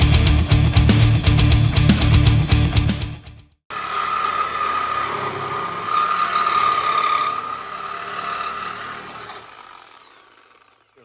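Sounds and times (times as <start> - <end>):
motor whining: 3.7 - 11.0.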